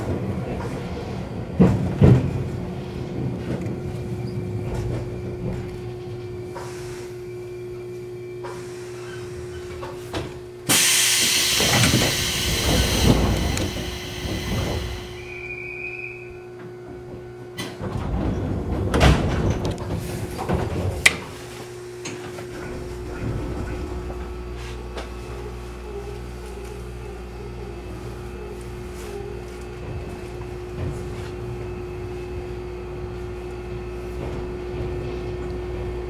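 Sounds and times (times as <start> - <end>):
train equipment hum: 0.0 - 36.0
loud hiss: 10.7 - 15.2.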